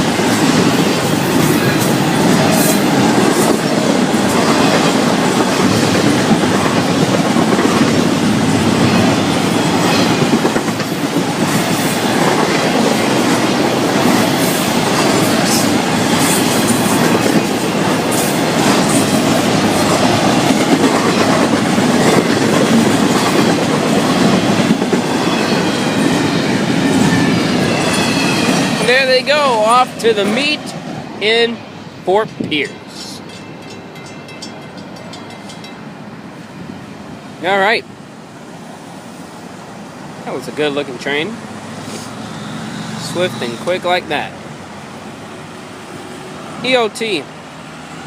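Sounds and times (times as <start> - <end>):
wheel clickety-clack: 0.0 - 26.3
freight cars rumbling on rails: 0.0 - 48.0.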